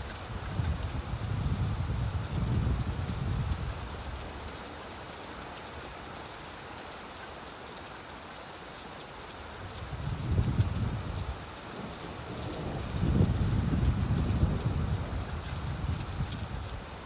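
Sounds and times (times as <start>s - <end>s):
rain falling: 0.0s - 17.0s
low thunder rumble: 10.1s - 16.8s.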